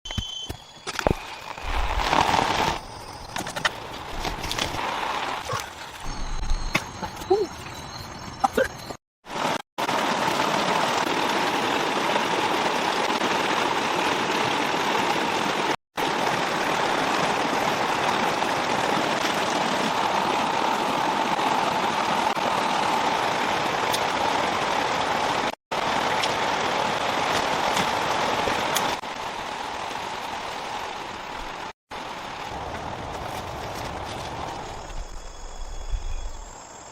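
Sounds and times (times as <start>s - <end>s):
heavy rain pouring: 9.3s - 34.9s.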